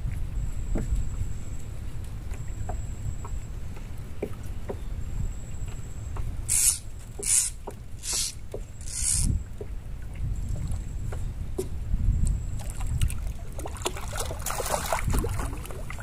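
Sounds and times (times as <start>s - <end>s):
fishing line swishing: 6.5s - 9.4s.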